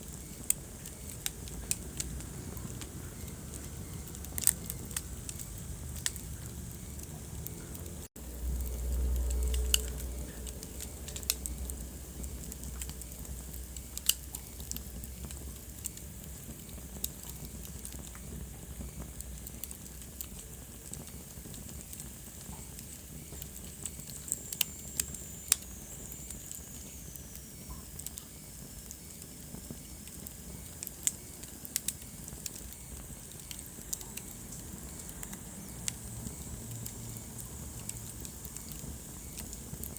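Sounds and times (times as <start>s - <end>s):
fire crackling and popping: 0.0s - 39.9s
low rumble: 1.2s - 14.0s.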